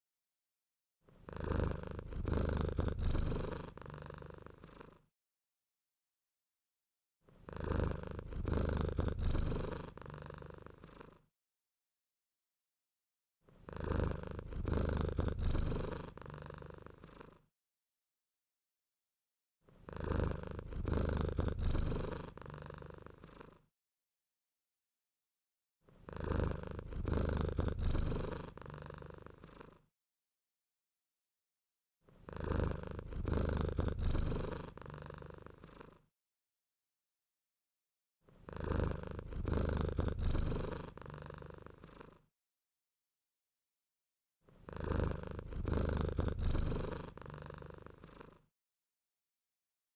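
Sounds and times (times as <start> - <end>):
low purring: 1.2 - 5.0, 7.4 - 11.2, 13.6 - 17.4, 19.8 - 23.6, 26.0 - 29.8, 32.2 - 36.0, 38.4 - 42.2, 44.6 - 48.5.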